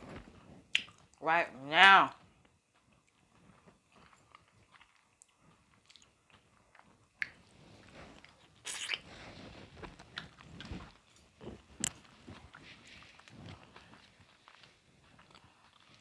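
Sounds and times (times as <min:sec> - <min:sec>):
chewing with wet clicks: 0:00.7 - 0:01.2, 0:02.4 - 0:07.5, 0:09.8 - 0:16.0.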